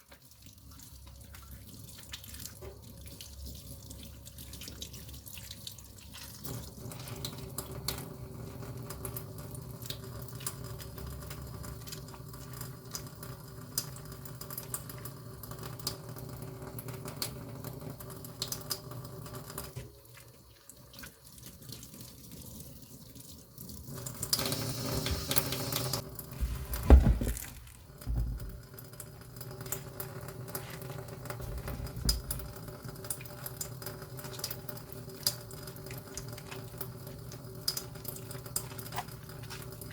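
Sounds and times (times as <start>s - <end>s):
water running and splashing: 19.6s - 39.9s
thump: 26.4s - 28.6s.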